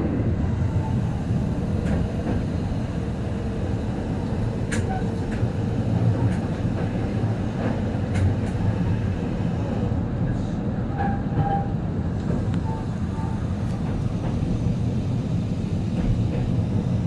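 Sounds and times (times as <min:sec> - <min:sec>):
train running noise: 0:00.0 - 0:17.0
sharp clicks from track: 0:04.7 - 0:05.4, 0:06.2 - 0:06.9, 0:07.6 - 0:08.6.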